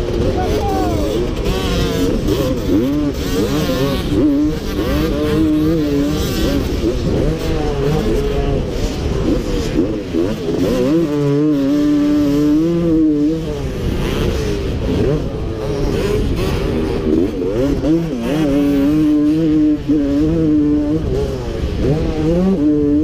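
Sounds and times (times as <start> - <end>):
motocross engine revving: 0.0 - 23.0.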